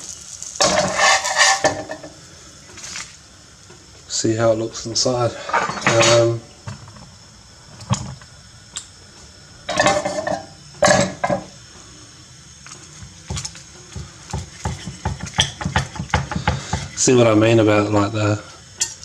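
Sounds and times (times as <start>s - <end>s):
crunching of crisp food: 2.7s - 3.2s.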